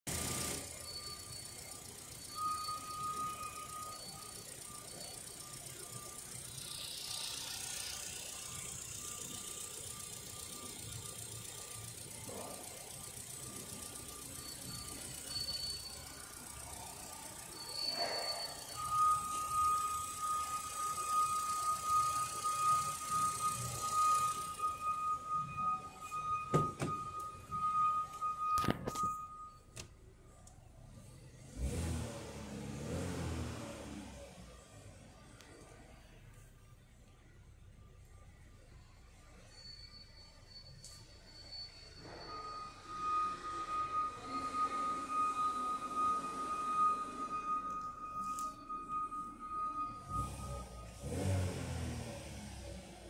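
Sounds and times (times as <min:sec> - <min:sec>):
car engine idling: 0:00.1 - 0:53.0
faint high tone: 0:00.2 - 0:30.5, 0:35.4 - 0:51.7.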